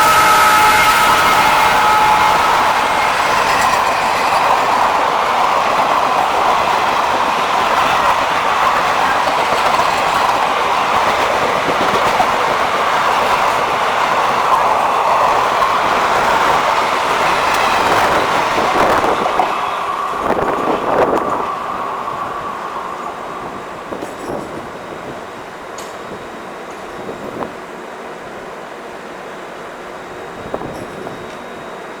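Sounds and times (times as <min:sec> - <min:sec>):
steel wheels running on rails: 0:00.0 - 0:32.0.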